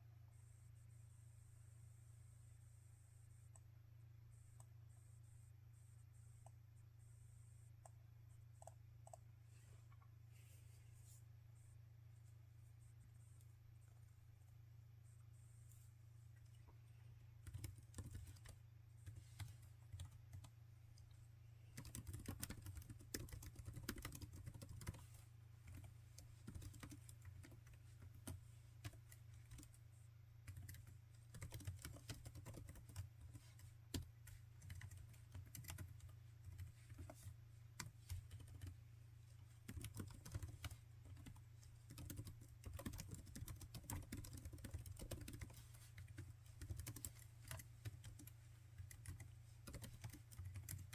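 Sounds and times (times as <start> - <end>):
laptop keyboard typing: 7.8 - 9.3, 17.4 - 20.5, 21.7 - 29.8, 30.4 - 38.8, 39.6 - 50.9.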